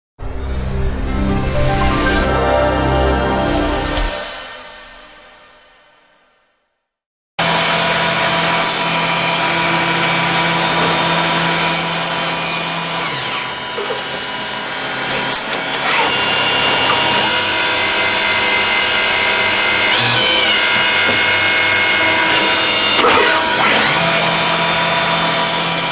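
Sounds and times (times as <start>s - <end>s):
lathe turning metal with whine: 7.4s - 25.9s.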